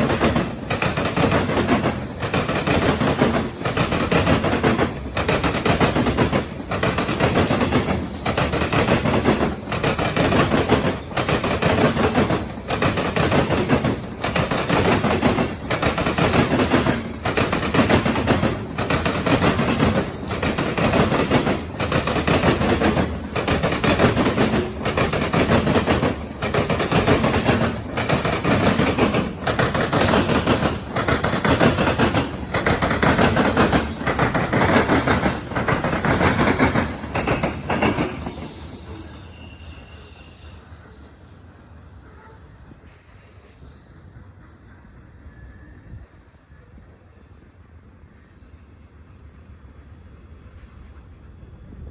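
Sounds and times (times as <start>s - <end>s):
train wheels clattering over crossing: 0.0s - 39.4s.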